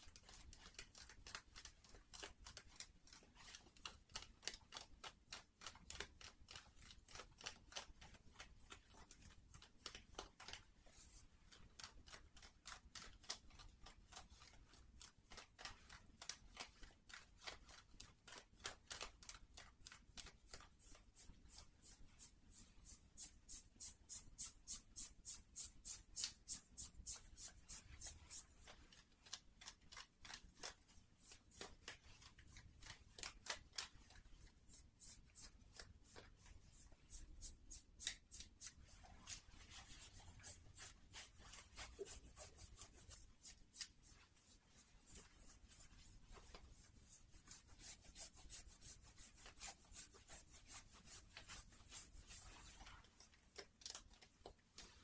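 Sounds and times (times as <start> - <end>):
fingertips scratching fabric: 34.3 - 53.0.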